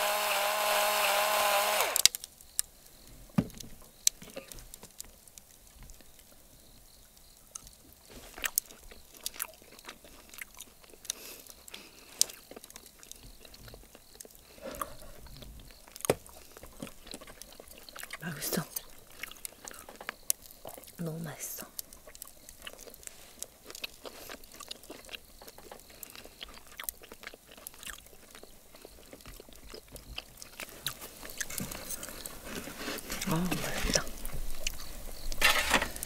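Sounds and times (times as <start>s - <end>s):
small motor whirring: 0.0s - 2.1s
person chewing food: 7.5s - 21.0s, 21.6s - 35.3s.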